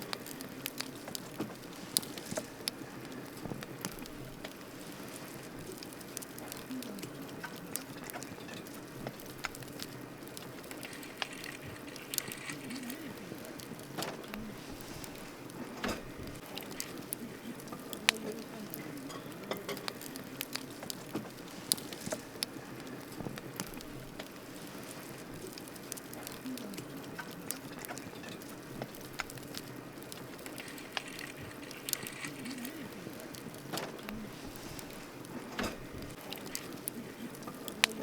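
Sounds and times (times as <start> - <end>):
campfire crackling and popping: 0.0 - 38.0
hiss of flame: 0.0 - 38.0.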